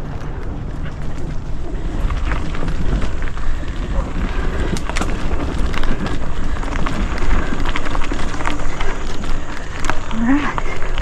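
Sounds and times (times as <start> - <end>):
bike rattling clicks: 0.0 - 11.0
bike tyres on dirt trail: 0.0 - 11.0
wind rumbling on microphone: 0.0 - 11.0.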